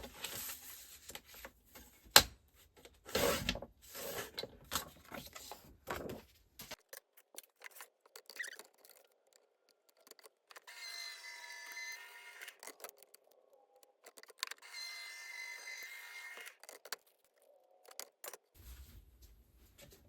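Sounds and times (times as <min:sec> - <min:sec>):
cardstock clicks and rustles: 0:02.9 - 0:10.7.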